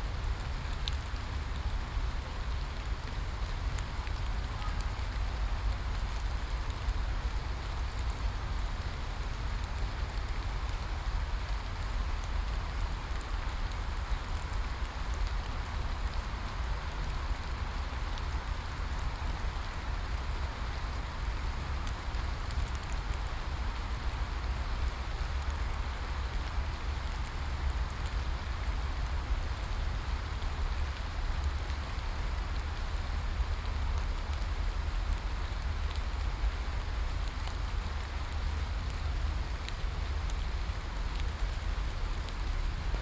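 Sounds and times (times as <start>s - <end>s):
steady rain falling: 0.0s - 43.0s
raindrops ticking: 23.6s - 43.0s.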